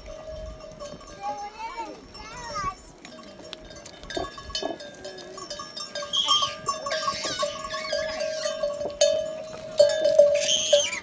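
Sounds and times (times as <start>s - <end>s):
sheep and goats bleating: 6.0s - 11.0s.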